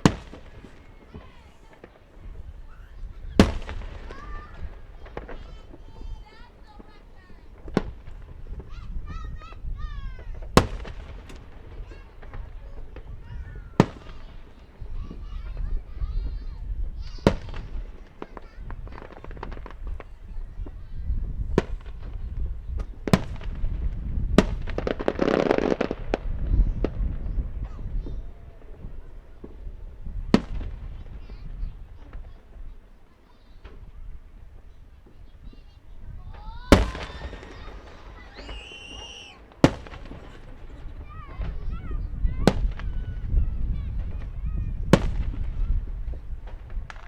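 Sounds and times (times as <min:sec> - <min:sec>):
firework shells bursting: 0:00.0 - 0:09.7, 0:33.6 - 0:43.3, 0:44.0 - 0:47.0
crackling firework reports: 0:00.0 - 0:47.0
voice-like calls: 0:36.8 - 0:39.5.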